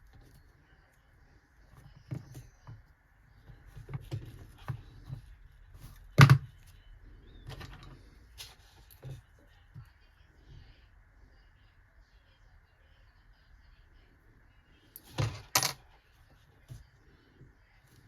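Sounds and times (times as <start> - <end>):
faint steady hum: 0.0 - 18.0
tools handled on a workbench: 15.0 - 15.9.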